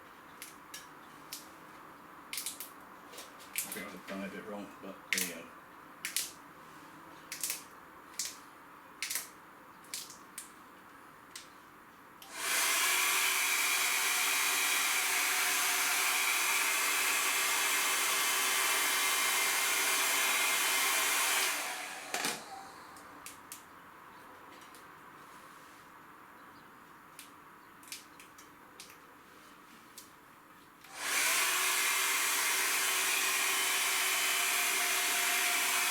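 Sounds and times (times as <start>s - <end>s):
hot-air blower whirring: 12.2s - 23.2s, 30.9s - 35.9s.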